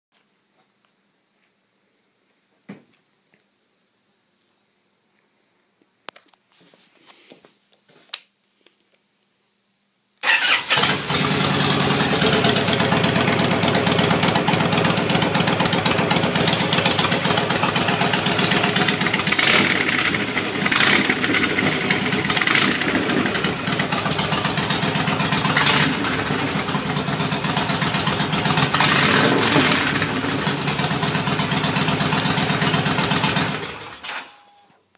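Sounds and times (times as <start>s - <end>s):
motorcycle engine starting and idling: 10.2s - 34.7s.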